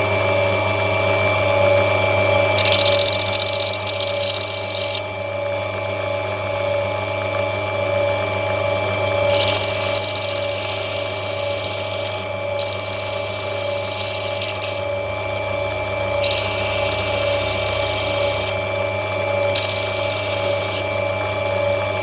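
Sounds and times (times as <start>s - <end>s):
grinding wheel motor hum: 2.5s - 5.1s, 9.0s - 18.8s, 19.5s - 22.0s
stone grinding hiss: 2.6s - 5.0s, 9.3s - 14.8s, 16.2s - 18.5s, 19.6s - 20.9s.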